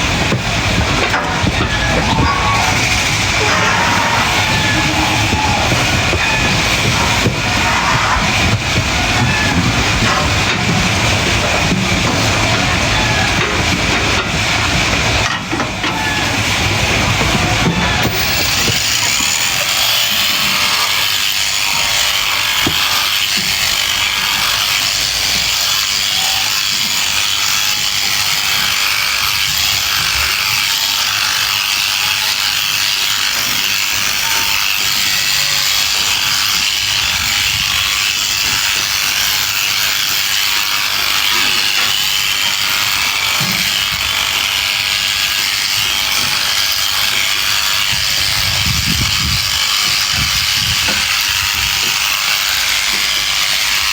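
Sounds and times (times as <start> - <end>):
electric sheep shears running: 0.0 - 53.9.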